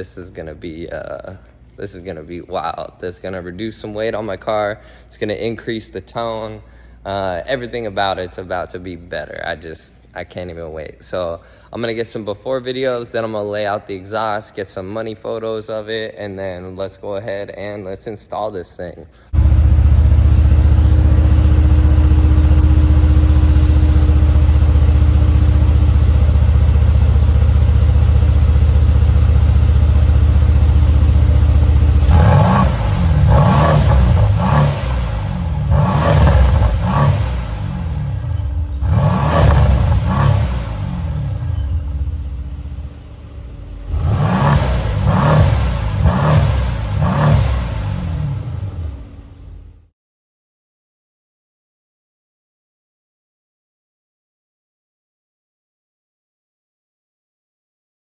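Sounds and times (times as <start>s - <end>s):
car engine revving: 19.4s - 49.7s.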